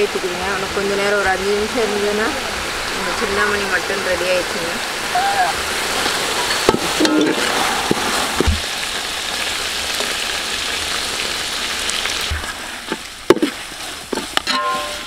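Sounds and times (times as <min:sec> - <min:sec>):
meat sizzling in oil: 0:05.6 - 0:15.0.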